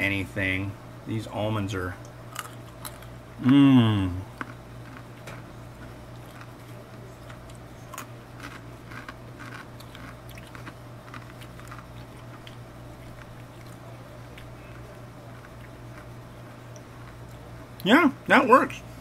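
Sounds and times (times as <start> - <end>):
steady low hum: 0.0 - 19.0
person chewing crunchy snack: 2.3 - 17.4.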